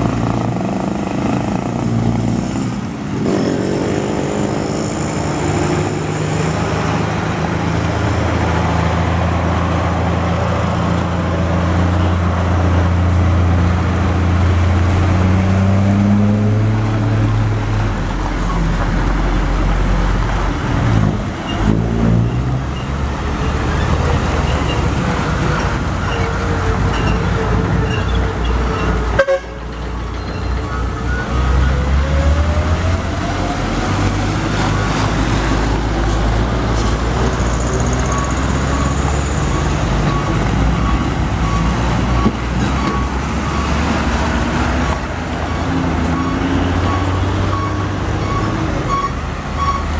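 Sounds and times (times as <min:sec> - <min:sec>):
truck engines revving: 0:00.0 - 0:49.9
vehicle horn: 0:29.2 - 0:29.7.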